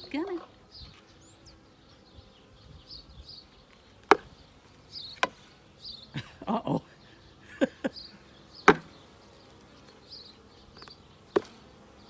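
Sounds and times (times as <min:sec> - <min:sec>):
honeybees buzzing: 0:00.0 - 0:12.0
sharp knocks of hive parts: 0:04.0 - 0:04.4, 0:05.2 - 0:05.5, 0:08.6 - 0:09.1, 0:10.8 - 0:11.8.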